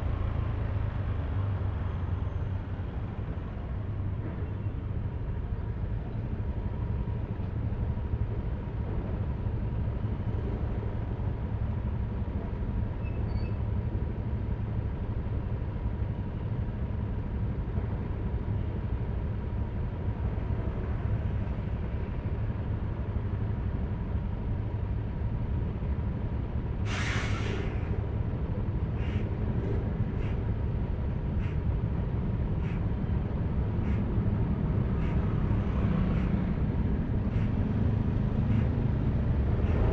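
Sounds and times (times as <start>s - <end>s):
road noise: 0.0s - 39.9s
loud short hiss: 26.9s - 27.8s.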